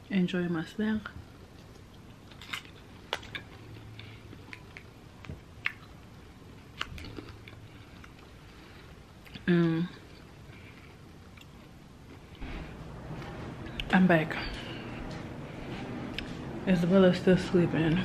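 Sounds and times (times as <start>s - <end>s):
faint chewing with crunches: 1.1s - 13.9s.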